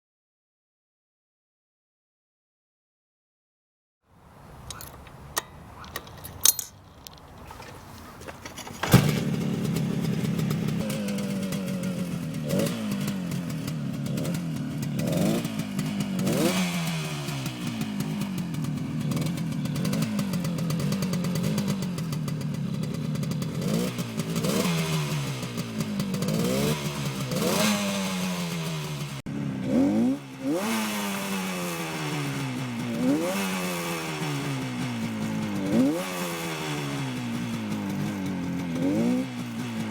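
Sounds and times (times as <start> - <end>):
motorcycle engine starting: 4.4 - 39.9
motorcycle engine revving: 4.5 - 39.9
clicks and knocks: 4.6 - 9.2.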